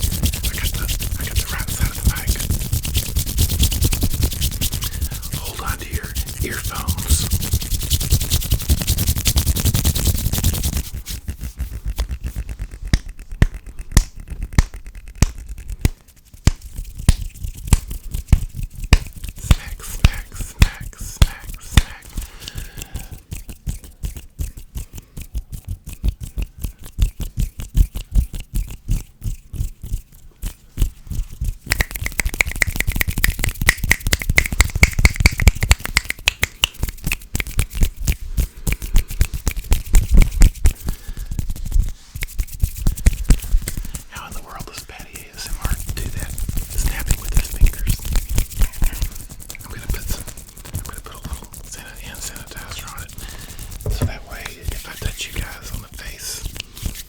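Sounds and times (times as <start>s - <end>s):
quick sharp finger clicks: 0.0s - 29.1s, 31.6s - 44.0s
hands rubbing together: 0.0s - 57.0s.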